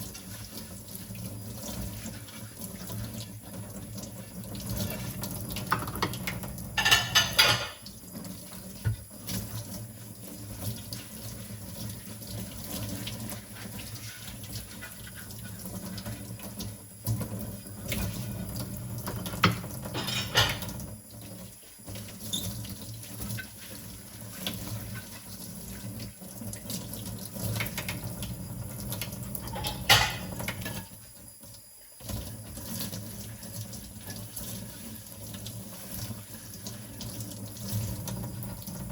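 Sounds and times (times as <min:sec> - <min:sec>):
tap water running into sink: 0:00.0 - 0:38.9
dishes clattering together: 0:05.6 - 0:07.9, 0:19.2 - 0:20.8, 0:29.4 - 0:30.9.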